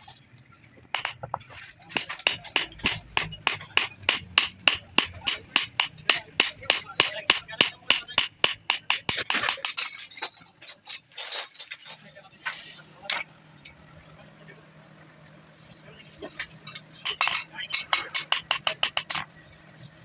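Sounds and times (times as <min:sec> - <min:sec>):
hammer ringing on steel: 0:02.0 - 0:09.2.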